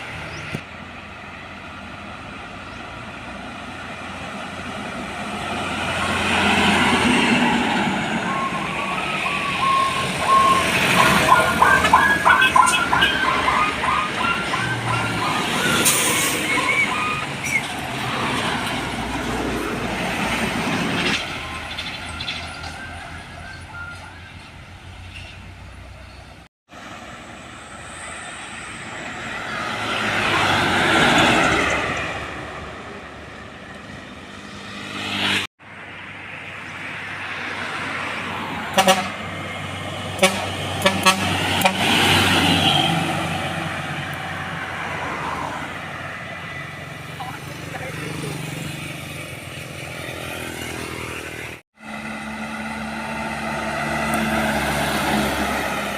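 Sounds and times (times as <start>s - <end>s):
heavy trucks driving past: 0.0s - 55.9s
truck horn toots: 8.3s - 15.1s, 38.6s - 39.3s, 40.2s - 43.2s.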